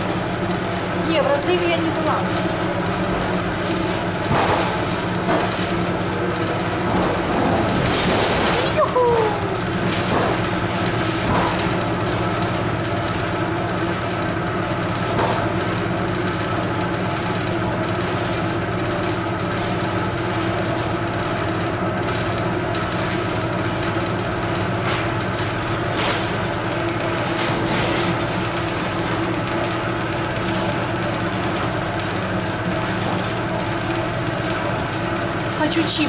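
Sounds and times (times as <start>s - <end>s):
train rumble and hum: 0.0s - 17.6s.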